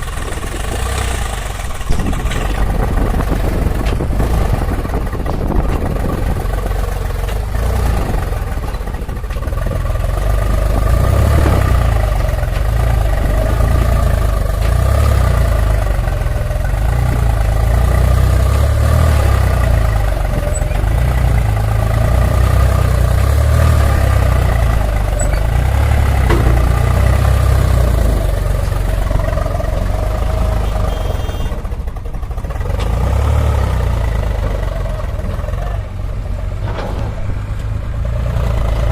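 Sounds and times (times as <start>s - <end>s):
diesel engine rumbling: 0.0s - 38.9s.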